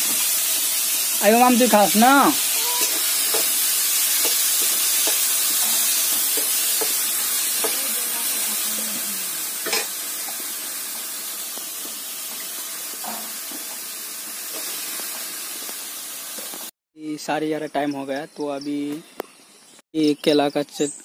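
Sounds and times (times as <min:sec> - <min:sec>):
potatoes sizzling in oil: 0:00.0 - 0:16.7
metal spatula scraping a wok: 0:02.7 - 0:07.9.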